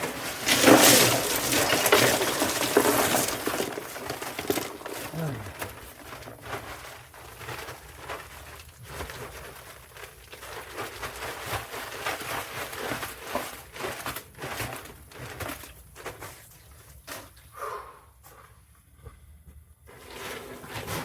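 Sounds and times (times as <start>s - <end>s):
granular material pouring: 0.0s - 16.7s
plastic bag crinkling: 0.0s - 16.8s.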